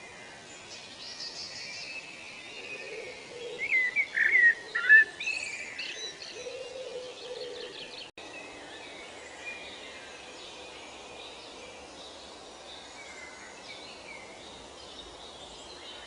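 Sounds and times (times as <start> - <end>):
background hiss: 0.0 - 16.0
birds chirping and trilling: 0.0 - 16.0
birds whistling calls: 1.4 - 8.1.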